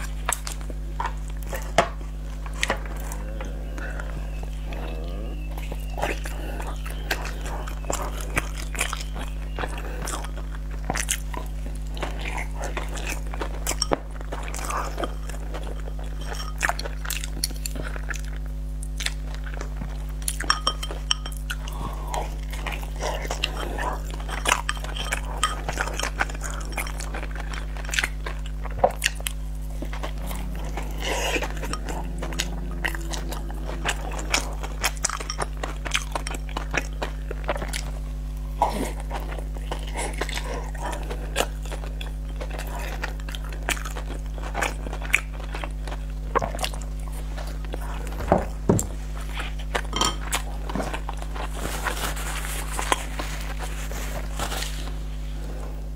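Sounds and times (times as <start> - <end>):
chewing and lip-smacking: 0.0 - 55.0
steady low hum: 0.0 - 55.9
chopsticks tapping ceramic bowl: 20.4 - 21.4
paper tissue rustling: 51.6 - 55.4.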